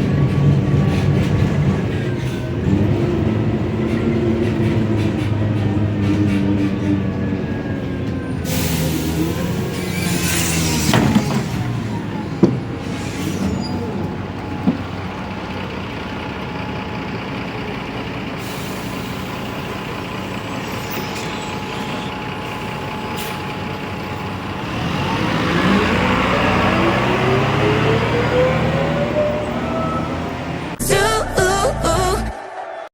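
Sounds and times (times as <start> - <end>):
bus diesel engine idling: 0.0 - 32.3
air brakes hissing: 8.3 - 12.0, 12.6 - 14.1, 18.3 - 24.5.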